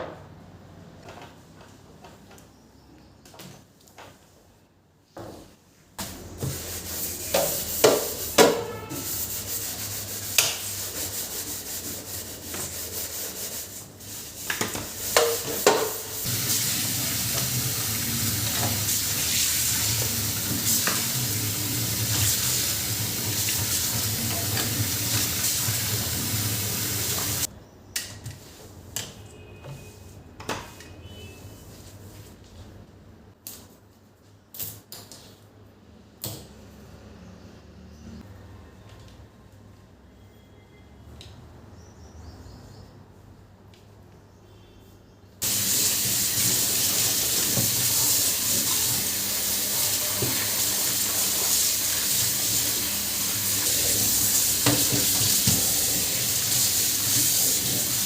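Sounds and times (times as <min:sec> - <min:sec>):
food sizzling in a pan: 0:15.2 - 0:27.5, 0:45.4 - 0:58.0.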